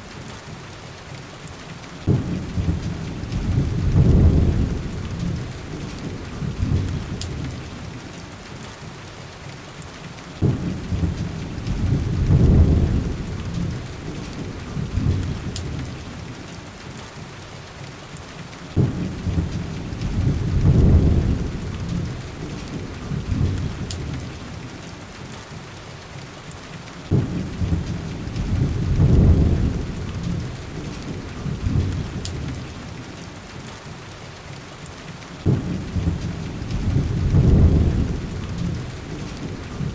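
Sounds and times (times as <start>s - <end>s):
heavy rain: 0.0s - 39.9s
deep thunder rumbles: 2.0s - 8.0s, 10.4s - 16.4s, 18.7s - 24.7s, 27.1s - 33.0s, 35.4s - 39.9s.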